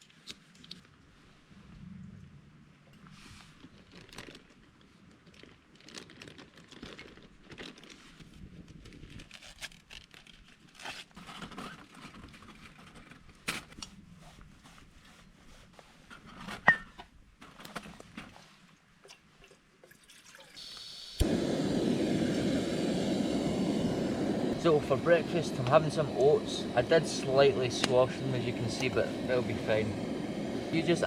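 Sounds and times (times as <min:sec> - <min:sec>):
plastic packaging crinkling: 0:03.6 - 0:12.6.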